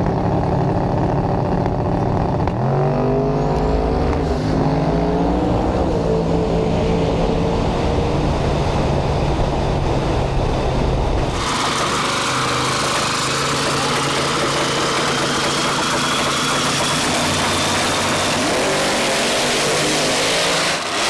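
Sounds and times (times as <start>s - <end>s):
race car engine running hard: 0.0s - 21.0s.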